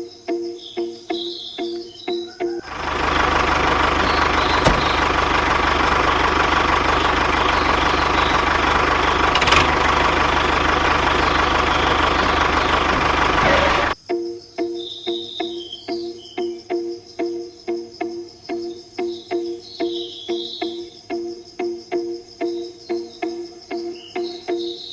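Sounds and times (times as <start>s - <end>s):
motor droning: 2.7s - 14.0s.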